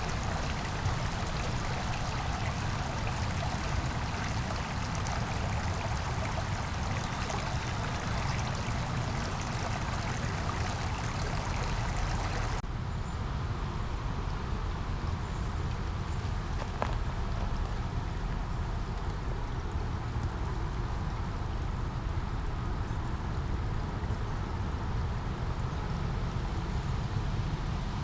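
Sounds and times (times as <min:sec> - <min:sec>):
brook babbling: 0:00.0 - 0:12.6, 0:15.2 - 0:24.1
low rush of water: 0:00.0 - 0:12.6.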